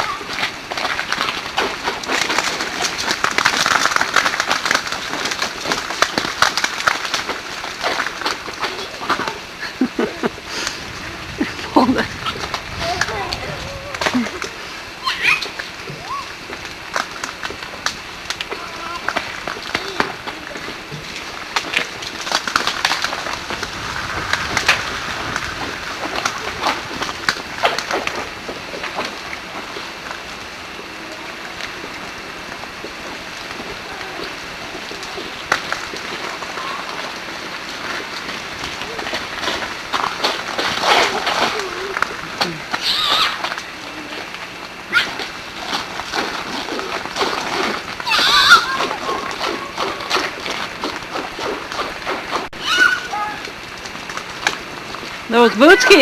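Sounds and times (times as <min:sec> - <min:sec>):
steady rushing noise: 0:00.0 - 0:42.7
ice cracking and shattering: 0:00.3 - 0:09.4, 0:16.5 - 0:29.4.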